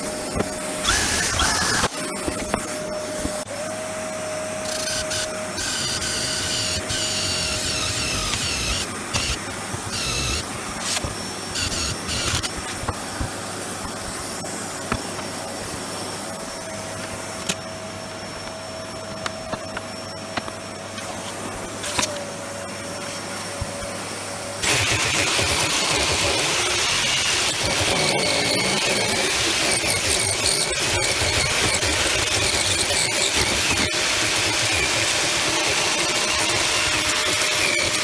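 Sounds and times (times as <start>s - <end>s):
electric power tool whining: 0.0s - 12.8s, 24.6s - 38.0s.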